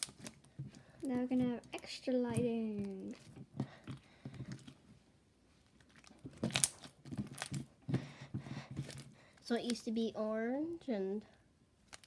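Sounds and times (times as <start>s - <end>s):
slime sticky clicks and crackles: 0.0s - 0.4s, 5.8s - 7.6s.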